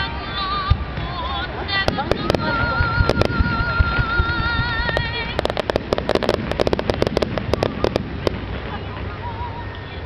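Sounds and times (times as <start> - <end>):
crackling pops of fireworks: 0.0 - 10.0
fireworks exploding: 0.0 - 10.0.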